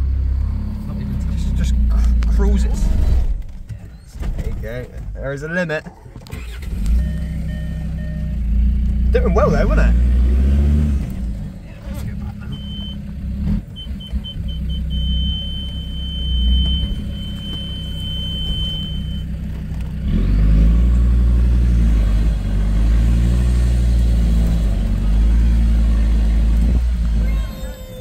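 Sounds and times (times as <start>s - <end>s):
engine working under load: 6.0s - 28.0s
high electronic beeps: 6.9s - 8.4s, 12.5s - 13.0s, 13.7s - 19.3s.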